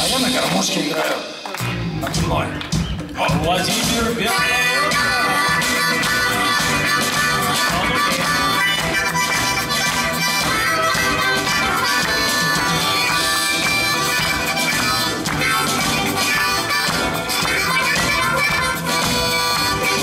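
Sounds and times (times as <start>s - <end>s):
live band playing: 0.0s - 20.0s
harmonica solo: 4.0s - 20.0s.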